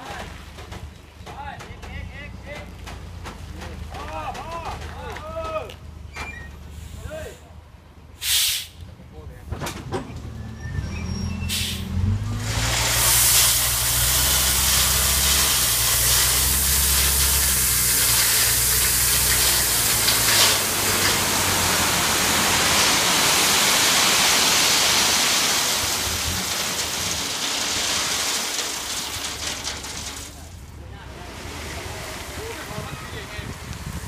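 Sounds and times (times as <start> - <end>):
rock pouring from truck bed: 12.4 - 32.9.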